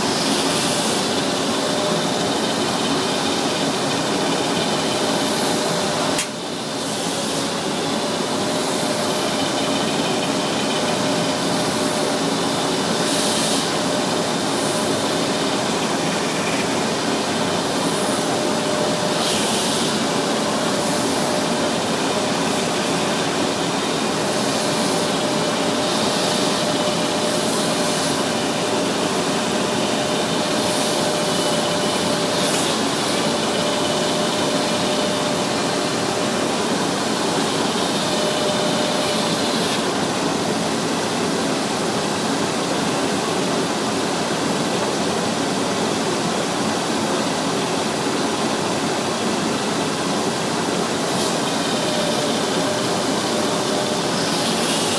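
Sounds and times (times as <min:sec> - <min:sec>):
sanding machine running: 0:00.0 - 0:54.9
sharp click: 0:06.2 - 0:06.4.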